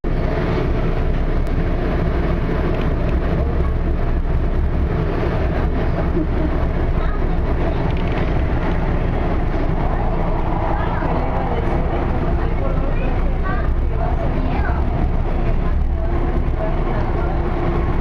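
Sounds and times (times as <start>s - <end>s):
light-rail train rumbling: 0.0s - 18.0s.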